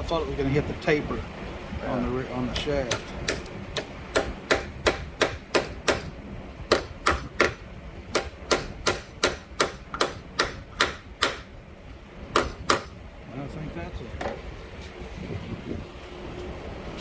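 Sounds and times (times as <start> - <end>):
hammer tapping on metal: 2.8 - 6.1, 6.7 - 11.5.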